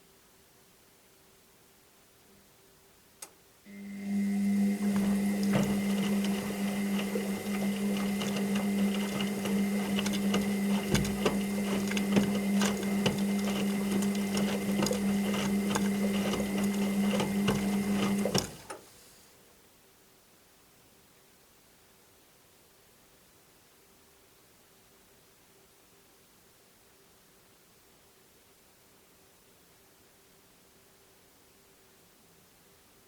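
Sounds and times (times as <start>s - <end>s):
washing machine motor hum: 3.7s - 18.8s
clicking and rattling: 4.8s - 18.8s.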